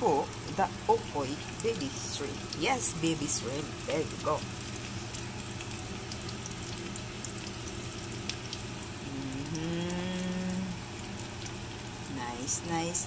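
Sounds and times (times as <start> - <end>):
food sizzling in hot oil: 0.0 - 13.0
person humming: 9.0 - 10.8.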